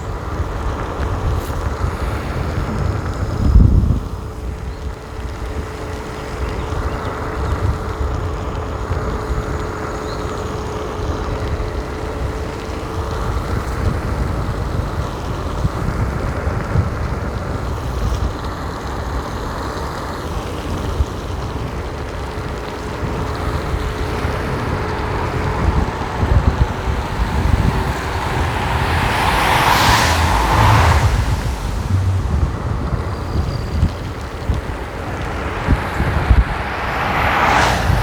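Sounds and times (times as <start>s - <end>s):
rumbling road noise: 0.0s - 38.0s
wind buffeting microphone: 21.2s - 38.0s.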